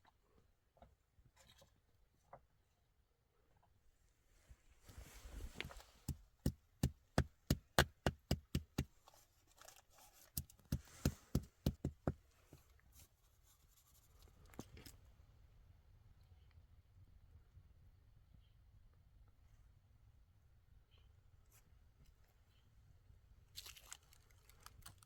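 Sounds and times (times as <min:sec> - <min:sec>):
rustling: 0:04.3 - 0:15.0
tool striking hard material: 0:06.0 - 0:08.9, 0:10.4 - 0:12.2.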